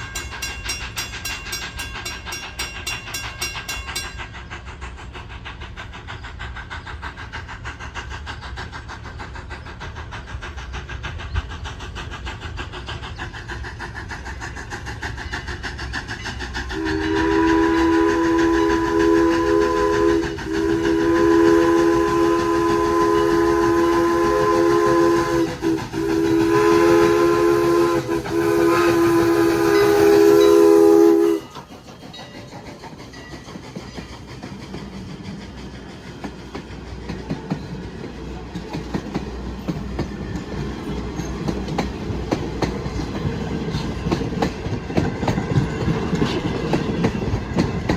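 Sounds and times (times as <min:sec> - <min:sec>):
rumble of passing train: 0:00.0 - 0:47.9
train chime whistle blasts: 0:16.8 - 0:31.6.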